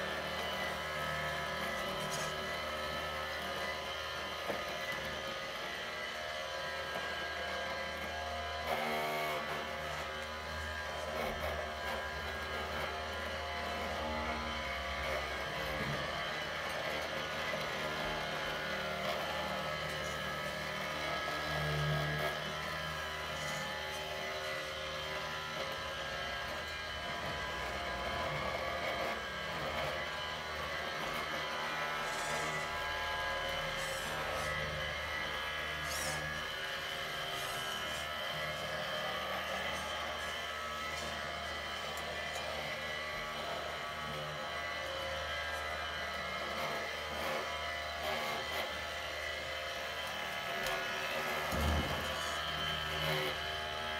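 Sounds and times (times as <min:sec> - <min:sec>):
electric motor whir: 0:00.0 - 0:53.9.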